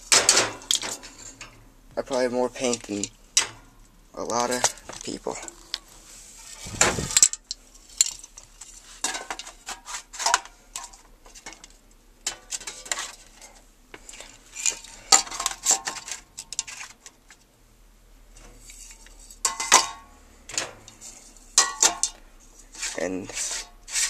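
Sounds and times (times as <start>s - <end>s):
metal spray cans clinking: 0.0s - 1.6s, 6.4s - 13.3s, 14.2s - 17.1s, 18.8s - 22.2s.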